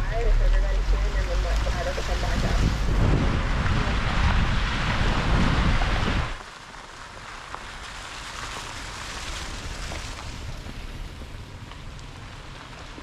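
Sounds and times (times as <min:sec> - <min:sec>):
wind buffeting microphone: 0:00.0 - 0:06.4, 0:08.9 - 0:13.0
low vehicle rumble: 0:00.0 - 0:13.0
rain hissing: 0:00.8 - 0:12.8
raindrops ticking: 0:06.4 - 0:13.0.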